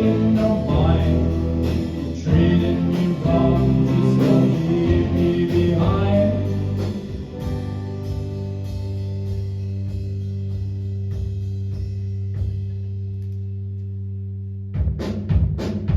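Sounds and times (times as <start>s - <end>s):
person singing: 0.0s - 7.2s
live guitar playing: 0.0s - 13.1s.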